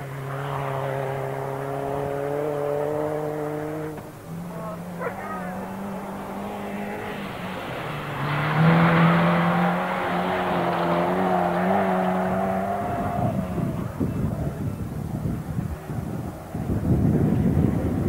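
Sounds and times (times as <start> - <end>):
rally car engine passing: 0.0 - 18.0
wind buffeting microphone: 10.8 - 18.0.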